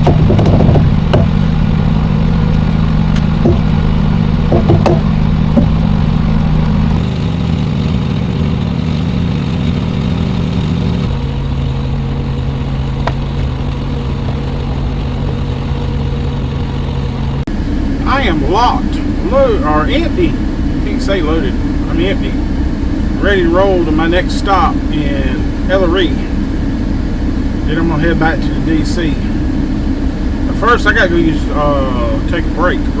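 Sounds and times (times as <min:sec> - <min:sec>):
diesel truck engine idling: 0:00.0 - 0:33.0.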